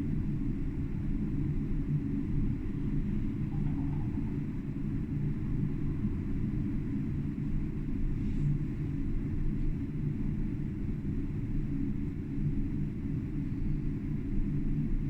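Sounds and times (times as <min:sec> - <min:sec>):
tram rumbling along track: 0:00.0 - 0:08.2.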